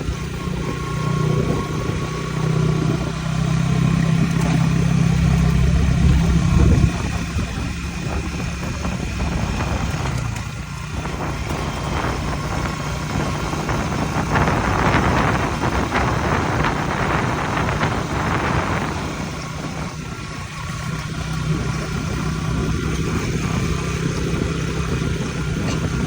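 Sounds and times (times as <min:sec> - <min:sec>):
harvester engine running: 0:00.0 - 0:26.0
rushing noise with rattles: 0:00.0 - 0:26.0.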